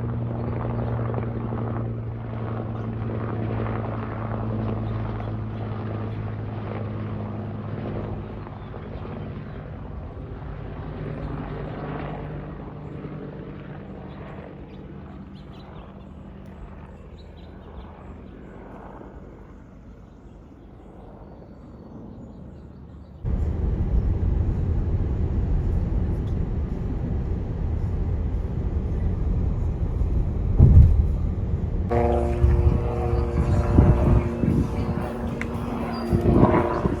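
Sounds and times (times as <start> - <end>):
aircraft engine droning: 0.0 - 37.0
loud low rumble: 23.3 - 37.0.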